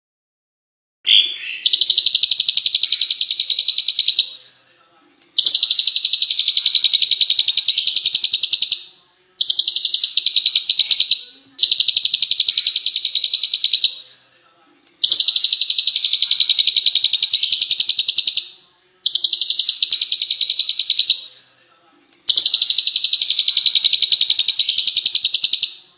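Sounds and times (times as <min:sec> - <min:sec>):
songbird trilling: 0:09.4 - 0:13.9.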